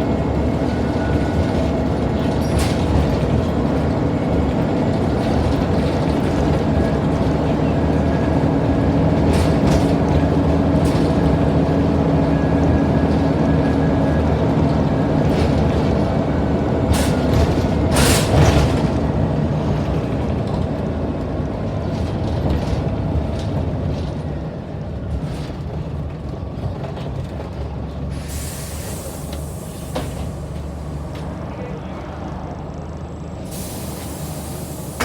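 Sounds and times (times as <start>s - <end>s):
bus engine running: 0.0s - 35.0s
air hiss: 28.2s - 30.5s, 33.5s - 35.0s.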